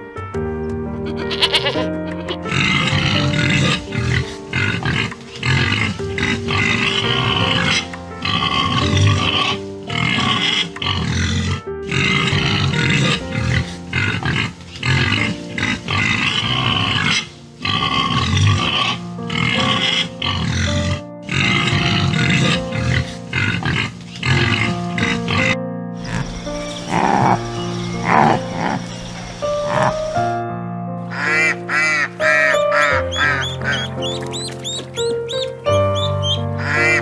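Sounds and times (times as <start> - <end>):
background music: 0.0 - 37.0
animal making short calls: 31.1 - 37.0.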